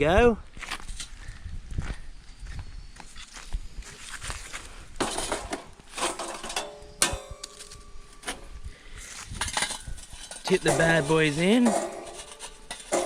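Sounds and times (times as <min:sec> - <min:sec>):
metal gear scraping and clattering: 0:05.0 - 0:08.4, 0:09.3 - 0:13.0
sharp metallic clank: 0:05.0 - 0:08.6, 0:09.3 - 0:13.0.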